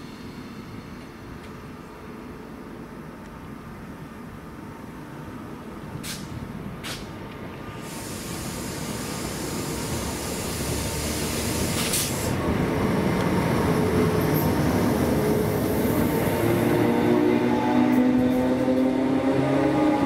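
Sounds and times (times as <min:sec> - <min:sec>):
train wheels rumbling on rail: 0:05.3 - 0:20.0.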